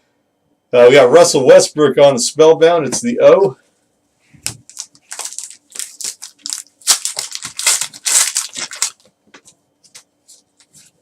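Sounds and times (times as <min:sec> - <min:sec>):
wrapper crinkling and tearing: 0:04.6 - 0:09.1.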